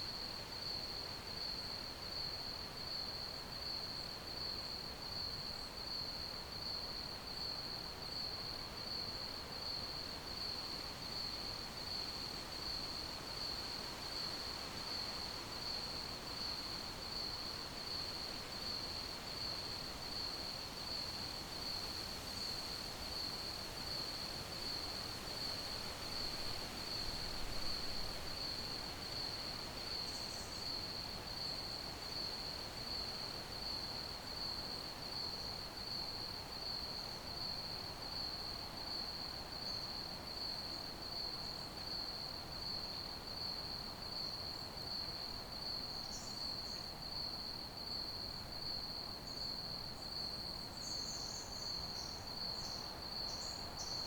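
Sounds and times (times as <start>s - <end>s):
crickets chirping: 12.7s - 54.0s.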